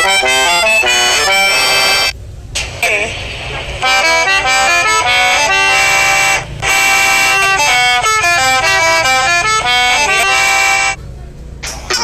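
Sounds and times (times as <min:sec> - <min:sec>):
accordion playing notes and chords: 0:00.0 - 0:11.0.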